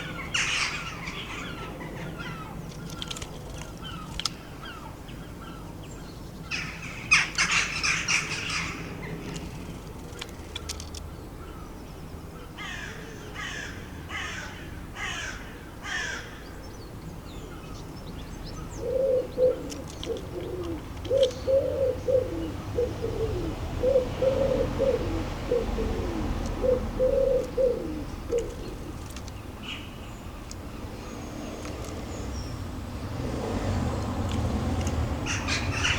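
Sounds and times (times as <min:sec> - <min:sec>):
bird chatter: 0:00.0 - 0:11.7, 0:17.3 - 0:22.9, 0:25.6 - 0:35.9
pigeon cooing: 0:18.7 - 0:29.2, 0:33.3 - 0:35.9.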